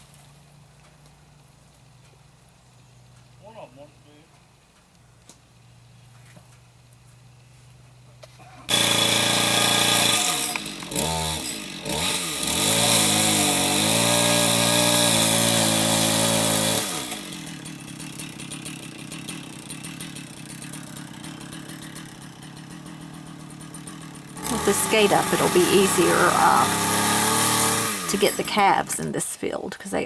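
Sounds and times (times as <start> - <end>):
chainsaw cutting a limb: 8.2 - 29.1.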